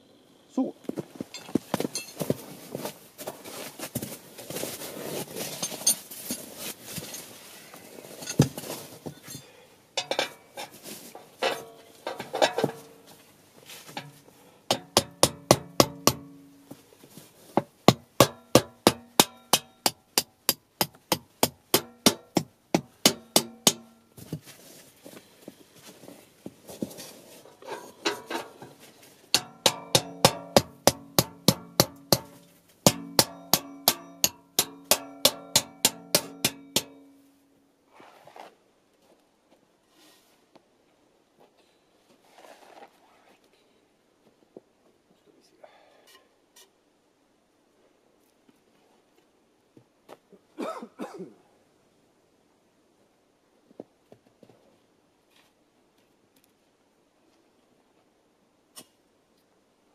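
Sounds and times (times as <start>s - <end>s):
scuffling and crunching: 0.8s - 9.4s, 23.2s - 37.3s
hammer striking metal pegs: 14.7s - 16.5s, 17.9s - 24.0s, 29.4s - 37.2s.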